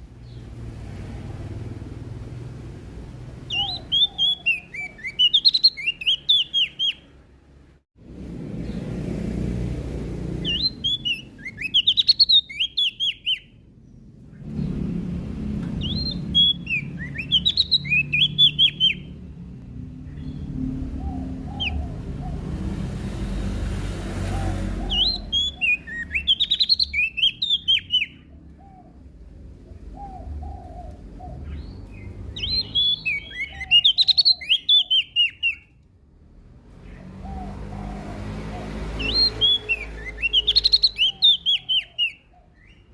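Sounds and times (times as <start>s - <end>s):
songbird twittering: 3.4s - 7.2s, 10.4s - 14.6s, 15.7s - 19.2s, 24.4s - 29.0s, 29.8s - 35.8s, 38.6s - 42.9s.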